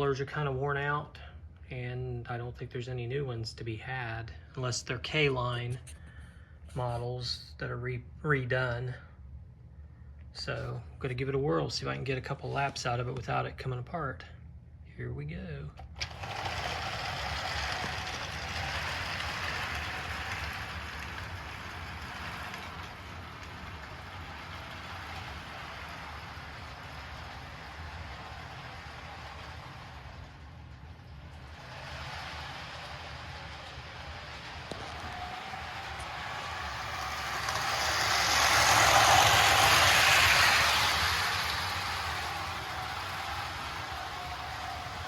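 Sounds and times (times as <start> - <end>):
toy train motor whirring: 15.8 - 45.0
wheels rattling on track: 16.0 - 45.0.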